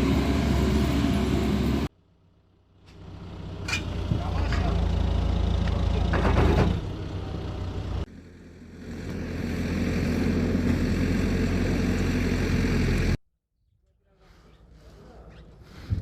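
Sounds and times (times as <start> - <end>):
engine starting and running: 0.0 - 13.2
heavy vehicle engine droning: 0.0 - 13.2.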